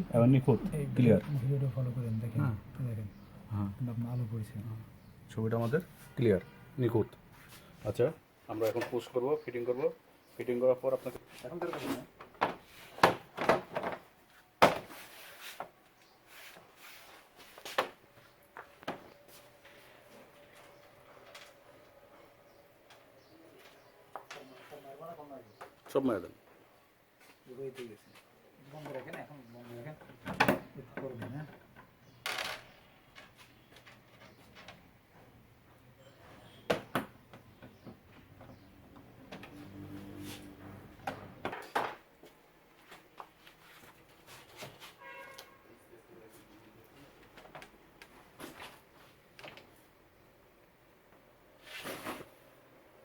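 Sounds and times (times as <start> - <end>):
quiet rubbing: 37.7 - 41.4.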